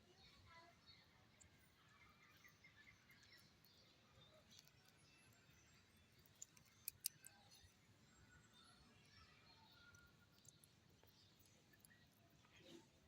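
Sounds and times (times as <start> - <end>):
sharp clicks: 6.4 - 7.3.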